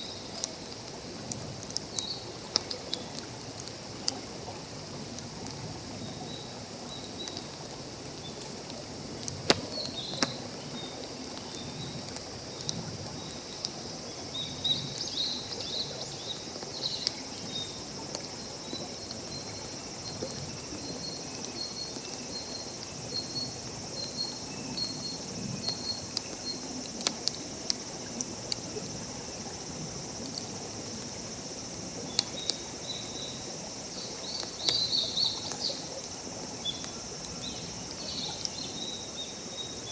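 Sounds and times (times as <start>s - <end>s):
steady outdoor hiss: 0.0s - 39.9s
campfire crackling and popping: 7.2s - 13.8s, 24.9s - 30.6s, 31.8s - 36.1s.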